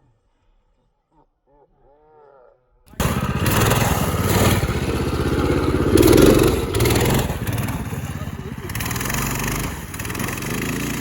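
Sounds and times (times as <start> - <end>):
small engine revving: 2.9 - 11.0.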